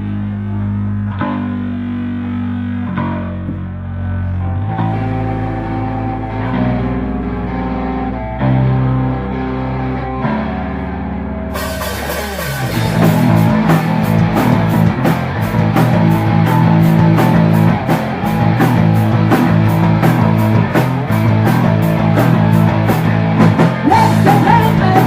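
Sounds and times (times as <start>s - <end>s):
bass: 0.0s - 25.0s
electric guitar chords: 0.0s - 25.0s
drums fast beat: 11.6s - 25.0s.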